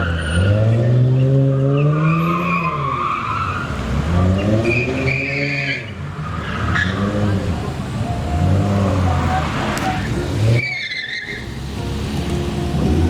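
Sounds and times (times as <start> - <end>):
tyres squealing: 2.1 - 11.7
car engine revving hard: 3.6 - 10.6, 11.2 - 13.0.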